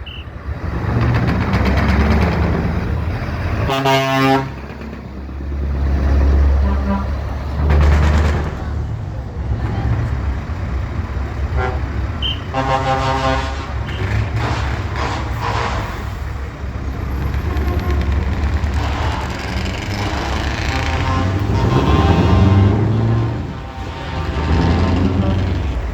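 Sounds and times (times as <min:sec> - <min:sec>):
truck engines rumbling: 0:00.0 - 0:25.9
truck horn: 0:03.5 - 0:04.9, 0:06.3 - 0:08.2, 0:11.4 - 0:25.9.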